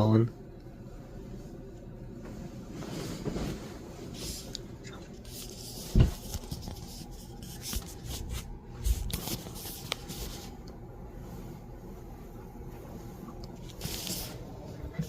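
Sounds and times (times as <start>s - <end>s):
rustling and rubbing: 2.2s - 4.5s, 5.1s - 15.0s
knocks and thump: 5.9s - 6.2s.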